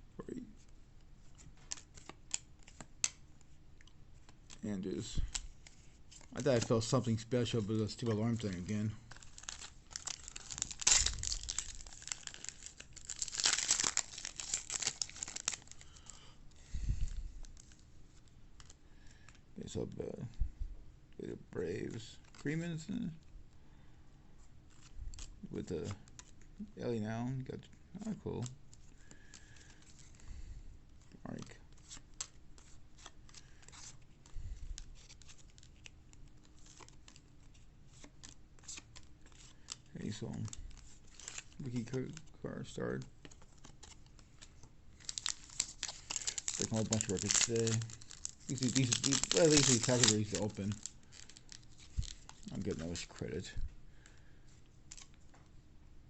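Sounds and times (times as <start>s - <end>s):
foil wrapper tearing and crinkling: 6.2s - 16.2s, 36.5s - 42.2s, 43.3s - 53.1s.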